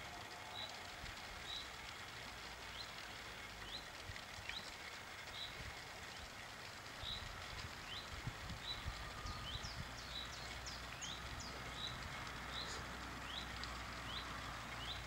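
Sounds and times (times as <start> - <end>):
songbird chirping: 7.0 - 15.0.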